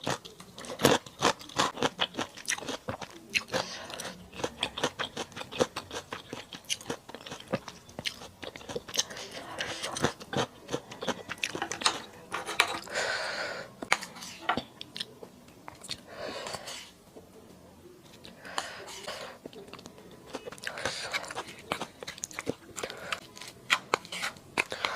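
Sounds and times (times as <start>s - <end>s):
wet chewing and crunching: 0.0s - 12.1s, 19.0s - 24.9s.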